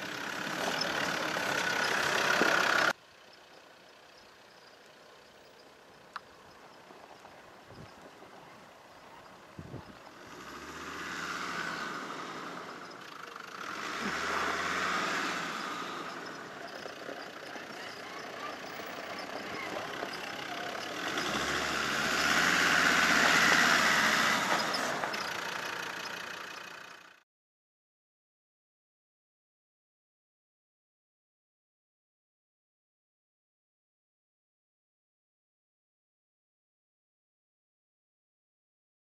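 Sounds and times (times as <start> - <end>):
four-by-four engine driving slowly: 0.0 - 27.2.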